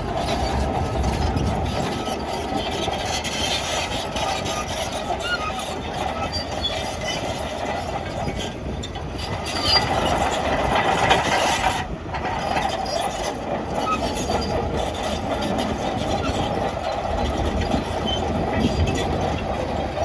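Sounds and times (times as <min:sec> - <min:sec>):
diesel engine running: 0:00.0 - 0:07.0
steel tracks clanking and squealing: 0:00.0 - 0:20.0.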